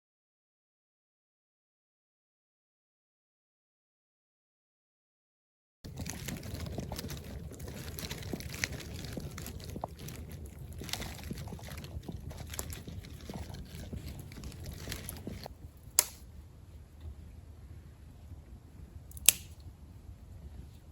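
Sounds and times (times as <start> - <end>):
campfire crackling and popping: 5.8 - 16.3, 19.1 - 19.7.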